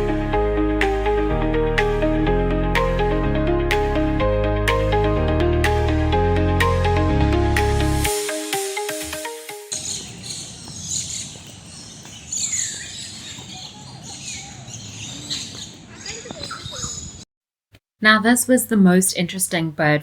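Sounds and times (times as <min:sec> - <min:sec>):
birds chirping and calling: 0:09.7 - 0:17.2.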